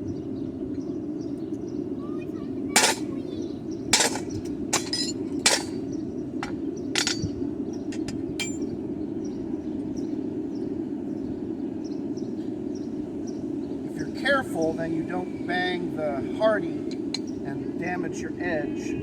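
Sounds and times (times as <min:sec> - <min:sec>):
low rushing hum: 0:00.0 - 0:19.0
hammer striking anvil: 0:02.8 - 0:03.0, 0:04.0 - 0:05.8, 0:06.4 - 0:07.3, 0:08.0 - 0:08.7
light metal clinks: 0:04.0 - 0:05.8, 0:06.4 - 0:08.7.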